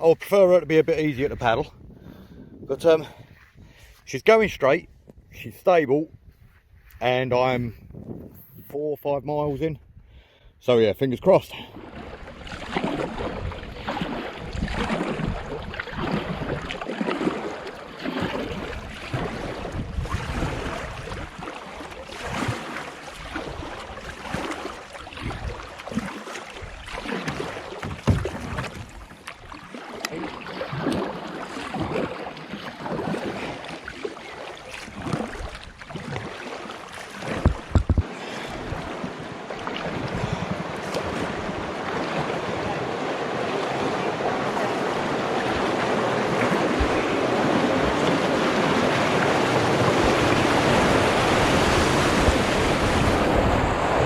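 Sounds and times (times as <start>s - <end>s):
wind on microphone: 0.7s - 5.4s, 6.0s - 8.8s, 11.7s - 21.5s, 25.1s - 29.2s, 37.2s - 54.0s
rushing water: 11.2s - 54.0s
paddle splashing in water: 11.4s - 54.0s.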